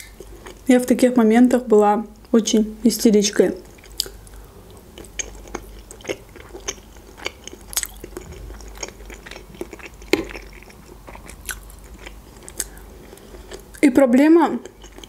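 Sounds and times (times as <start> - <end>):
wet mouth chewing clicks: 3.7 - 13.8.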